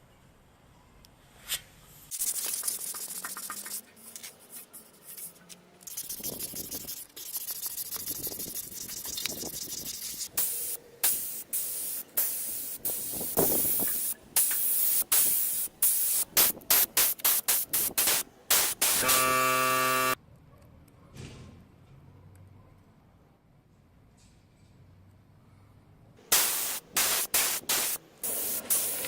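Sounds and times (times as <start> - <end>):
spray paint nozzle hissing: 2.1 - 3.9, 5.2 - 20.2, 26.3 - 29.0.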